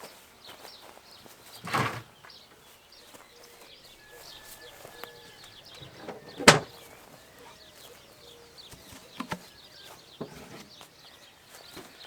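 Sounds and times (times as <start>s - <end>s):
small birds chirping: 0.0s - 12.0s
soft knocks: 5.8s - 6.9s, 8.7s - 10.8s.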